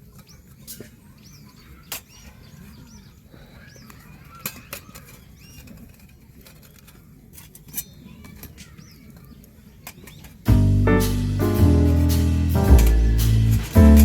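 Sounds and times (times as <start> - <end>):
faint birds chirping: 0.0 - 14.0
guitar and piano music: 10.5 - 14.0.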